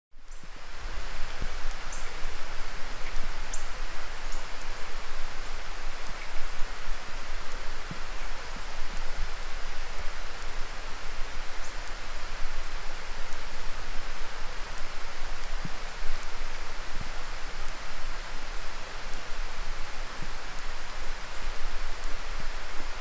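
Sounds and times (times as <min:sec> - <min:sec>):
steady rain falling: 0:00.1 - 0:23.0
faint high ticks: 0:00.2 - 0:00.5, 0:01.2 - 0:02.2, 0:03.0 - 0:03.7, 0:04.3 - 0:04.8, 0:05.4 - 0:06.4, 0:07.4 - 0:09.2, 0:10.3 - 0:10.6, 0:11.6 - 0:12.0, 0:13.2 - 0:13.6, 0:14.7 - 0:17.9, 0:19.1 - 0:19.3, 0:20.2 - 0:20.8, 0:21.8 - 0:22.3.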